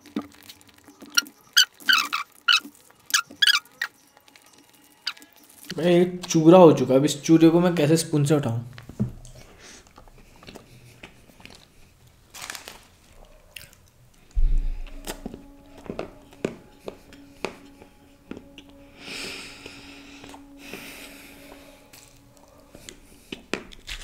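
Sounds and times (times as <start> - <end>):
chewing muffin: 0.0 - 6.4, 8.7 - 17.6, 21.9 - 24.0
heavy dull thump: 14.4 - 15.4.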